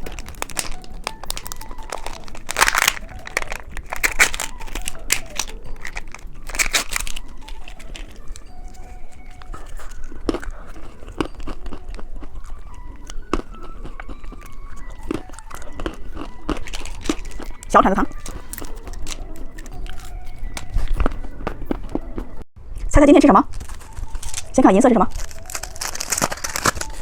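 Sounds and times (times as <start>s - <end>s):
plastic packaging crinkling and tearing: 0.0s - 22.3s, 23.5s - 27.0s.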